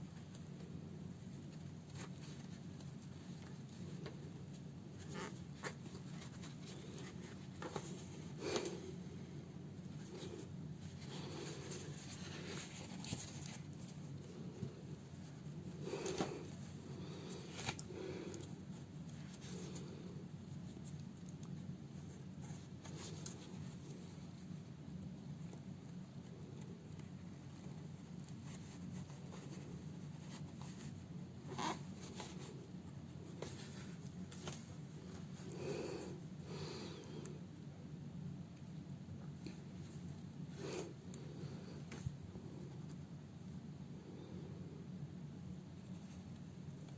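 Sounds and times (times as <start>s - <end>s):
low steady hum: 0.0s - 46.9s
fabric rustling: 9.8s - 19.9s, 27.7s - 35.5s.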